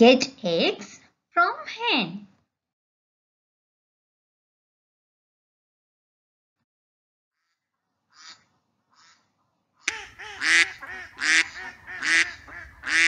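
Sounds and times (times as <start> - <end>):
duck quacking: 7.4 - 13.0.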